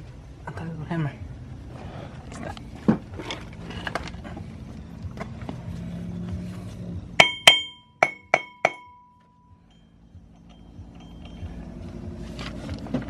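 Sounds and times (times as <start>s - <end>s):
tools knocking: 7.2s - 11.5s
hammer striking metal: 7.2s - 11.6s.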